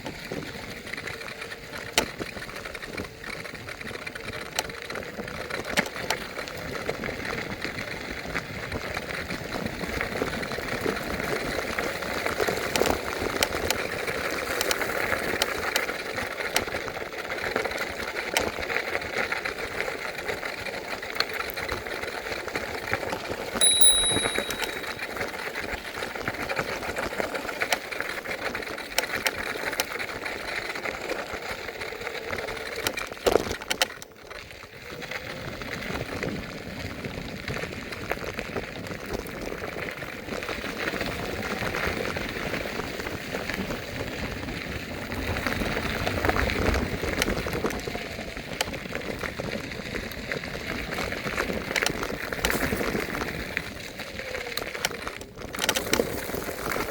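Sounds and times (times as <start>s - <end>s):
scooter wheels rattling over pavement: 0.1s - 23.6s, 27.3s - 56.9s
short high ring: 23.6s - 25.3s.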